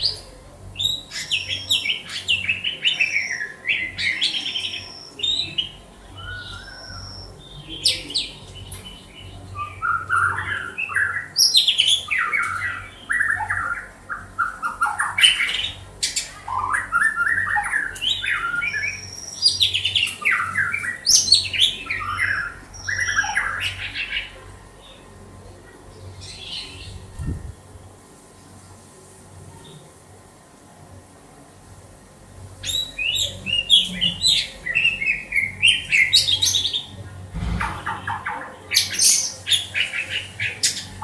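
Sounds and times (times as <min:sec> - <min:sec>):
bird chattering song: 0:32.6 - 0:41.0.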